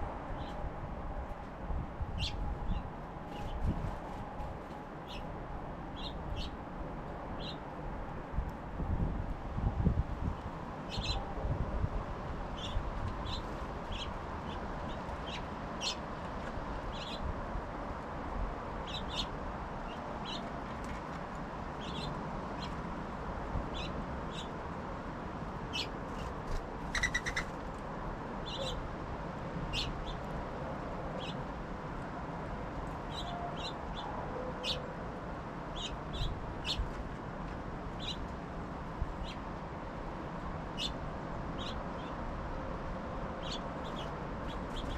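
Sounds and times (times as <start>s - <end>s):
songbirds chirping: 5.0s - 6.6s, 10.4s - 11.3s, 12.5s - 16.2s, 18.7s - 22.9s, 25.6s - 27.6s, 29.7s - 30.4s, 31.0s - 32.1s, 32.8s - 39.5s, 40.4s - 42.3s, 43.2s - 44.9s.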